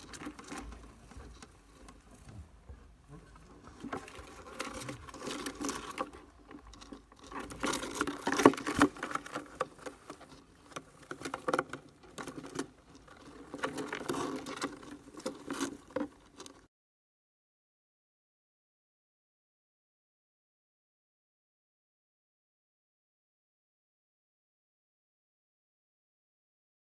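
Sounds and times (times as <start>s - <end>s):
scratchy rustling and clicking: 0.0s - 16.7s.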